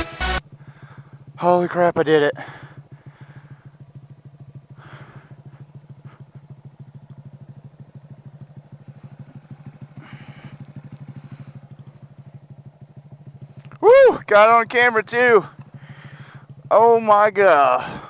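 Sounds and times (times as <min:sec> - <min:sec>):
motorcycle engine putter: 0:02.5 - 0:13.8, 0:15.4 - 0:16.7.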